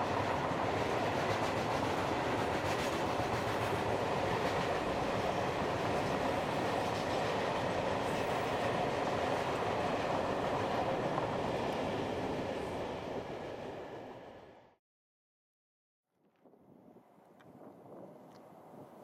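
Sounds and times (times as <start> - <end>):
freight train rumbling on rails: 0.0 - 14.7.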